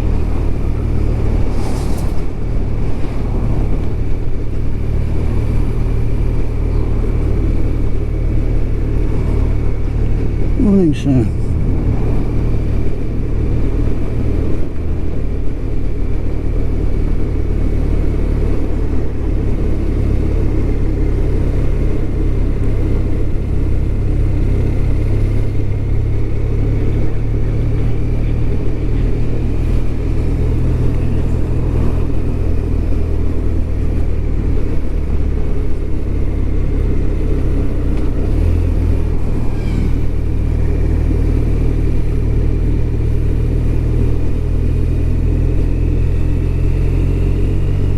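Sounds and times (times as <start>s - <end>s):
wind and road noise: 0.0s - 47.9s
faint high whine: 39.4s - 40.4s.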